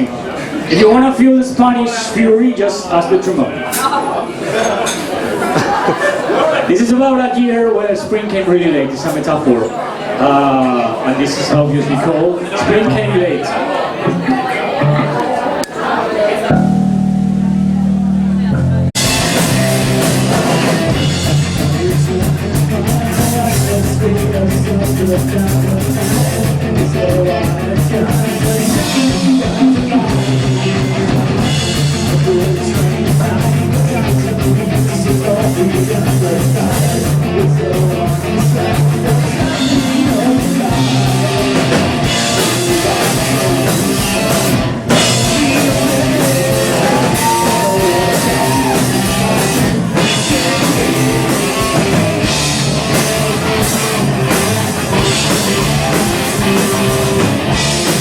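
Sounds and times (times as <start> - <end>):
electric guitars: 14.0 - 58.0
bass guitar: 16.5 - 58.0
drum kit: 16.5 - 58.0.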